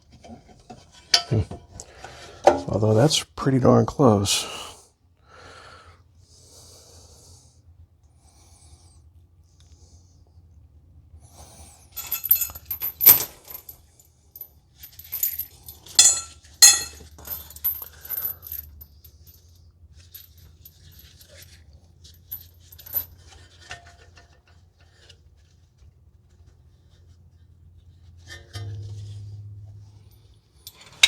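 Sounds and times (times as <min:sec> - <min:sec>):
metal tools clinking: 0:01.1 - 0:01.4, 0:12.0 - 0:13.7, 0:14.9 - 0:18.8, 0:28.4 - 0:31.0.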